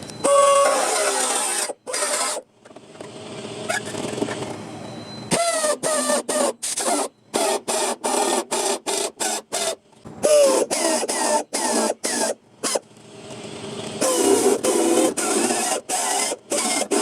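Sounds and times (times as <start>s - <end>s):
power tool running: 9.6s - 17.0s.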